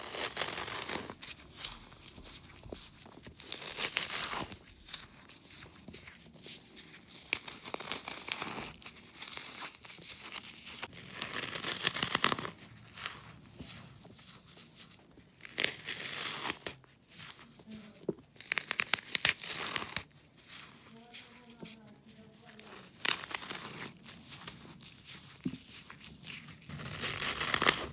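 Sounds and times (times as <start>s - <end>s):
wet floral foam crunching: 15.3s - 27.9s.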